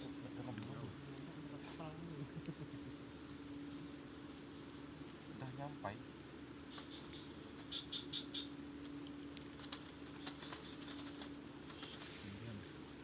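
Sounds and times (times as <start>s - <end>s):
crickets trilling: 0.0s - 13.0s
low steady hum: 0.0s - 13.0s.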